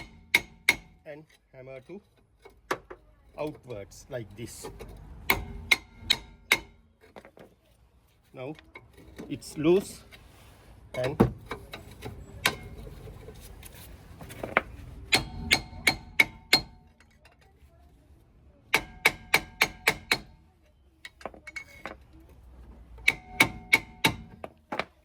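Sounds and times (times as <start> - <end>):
hammer striking metal drum: 0.0 - 1.0, 5.3 - 6.8, 15.1 - 16.8, 18.7 - 20.4, 23.0 - 24.4.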